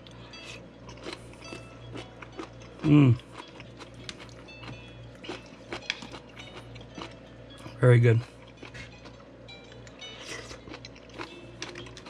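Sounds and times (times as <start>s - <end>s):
mouth chewing crunchy food: 0.4s - 9.2s, 9.8s - 12.0s
person humming mm: 2.8s - 3.2s.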